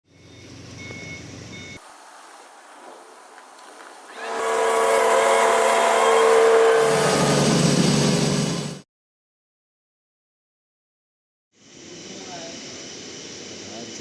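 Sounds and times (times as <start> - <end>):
loud machine hum: 4.1 - 8.8
machine running: 4.1 - 8.8.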